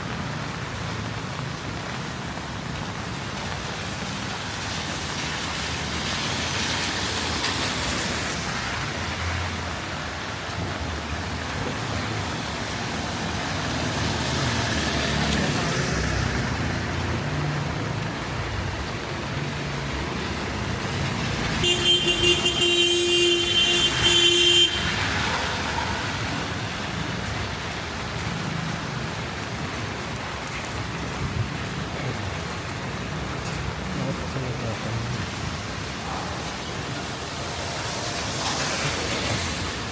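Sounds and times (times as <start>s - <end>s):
traffic on wet street: 0.0s - 39.9s
vehicle horn: 21.6s - 25.1s.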